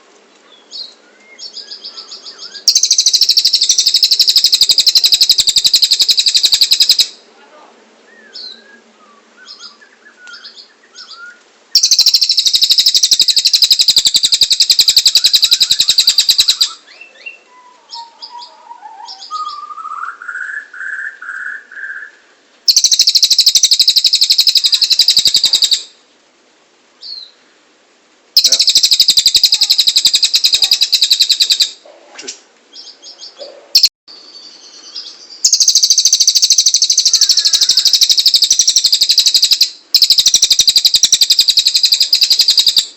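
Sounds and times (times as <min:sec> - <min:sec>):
bird chirps: 0:00.5 - 0:07.2, 0:08.1 - 0:26.0, 0:28.4 - 0:31.8, 0:32.7 - 0:42.9
bird buzzing trills: 0:02.6 - 0:07.1, 0:35.5 - 0:42.9
rising whistled bird phrase: 0:08.1 - 0:25.8, 0:34.9 - 0:42.9.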